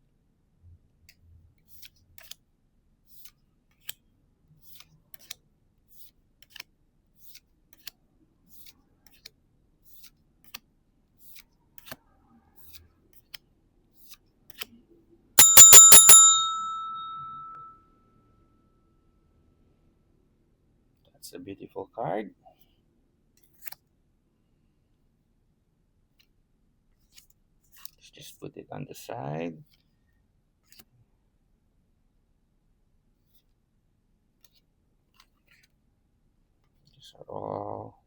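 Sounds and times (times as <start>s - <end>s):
small bell trill: 15.4s - 17.7s.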